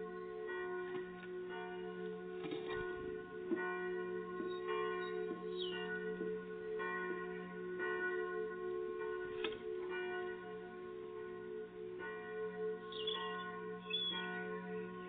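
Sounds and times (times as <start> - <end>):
church bells ringing: 0.0 - 15.0
bird chirp: 4.5 - 5.8, 12.9 - 14.2.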